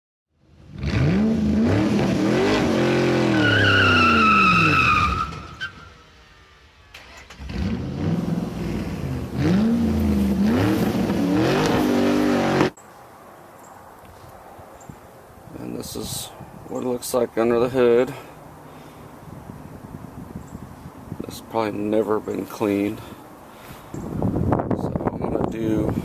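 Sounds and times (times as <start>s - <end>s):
car engine revving and accelerating: 0.6s - 5.3s, 7.2s - 12.8s
tire squeal: 1.0s - 6.3s.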